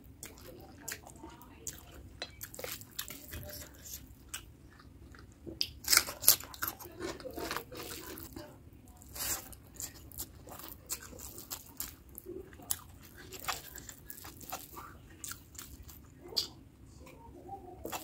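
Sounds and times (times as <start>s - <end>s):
wet chewing sounds: 0.0s - 16.6s, 17.8s - 18.0s.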